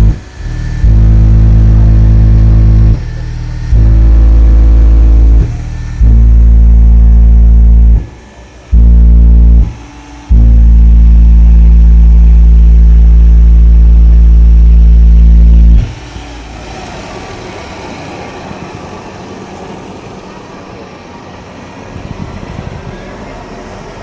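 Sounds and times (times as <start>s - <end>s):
loud low bass tone: 0.0s - 17.4s.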